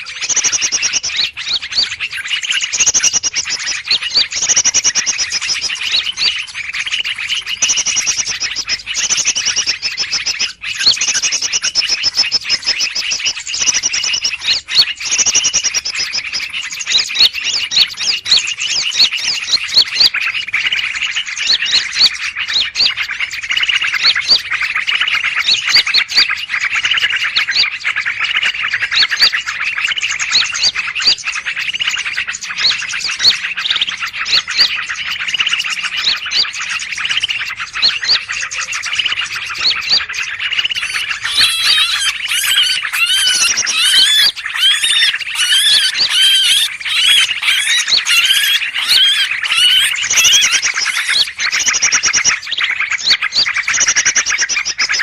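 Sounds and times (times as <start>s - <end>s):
flock of small birds chirping: 0.0s - 55.0s
high sharp chirps: 40.7s - 51.4s.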